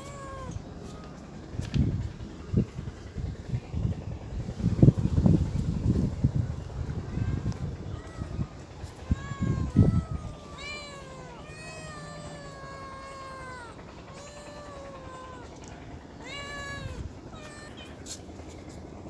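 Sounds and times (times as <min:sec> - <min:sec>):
cats meowing: 0:00.0 - 0:01.2, 0:07.6 - 0:18.0.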